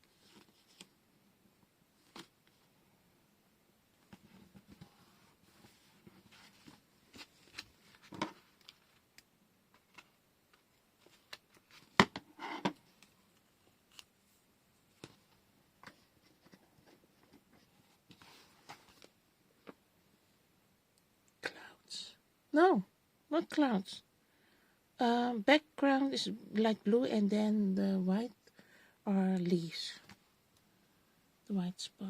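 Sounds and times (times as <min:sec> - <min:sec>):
paper rustling: 0:04.1 - 0:09.0.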